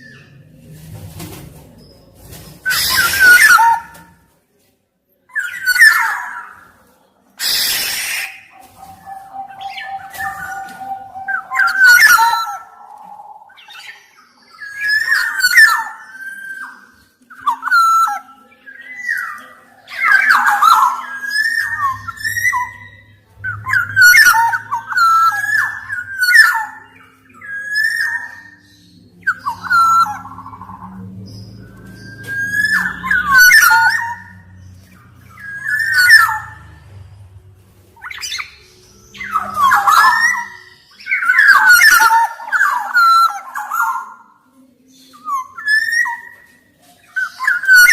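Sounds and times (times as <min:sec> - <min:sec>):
oriole whistled song: 0:02.6 - 0:04.2, 0:05.3 - 0:06.8, 0:07.4 - 0:37.0, 0:38.0 - 0:47.9
low hum: 0:21.8 - 0:26.1.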